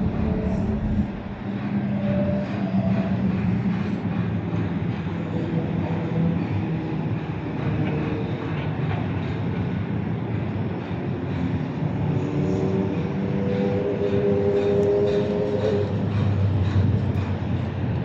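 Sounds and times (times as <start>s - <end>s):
hum: 0.0s - 1.4s
moving vehicle rumble: 0.0s - 5.8s.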